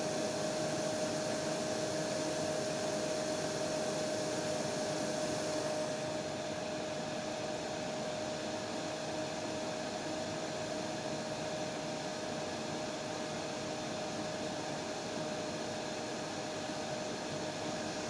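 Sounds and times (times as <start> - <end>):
hair dryer running: 0.0 - 8.6.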